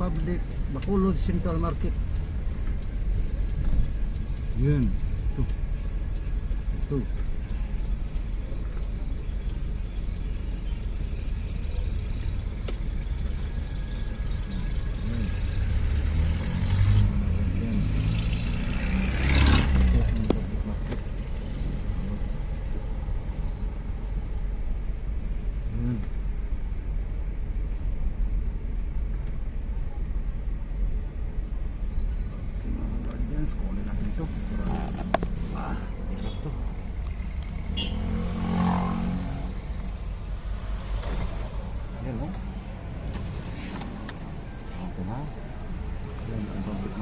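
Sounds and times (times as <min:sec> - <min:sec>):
low engine rumble of traffic: 0:00.0 - 0:47.0
vehicle passing close: 0:13.2 - 0:23.8, 0:32.7 - 0:47.0.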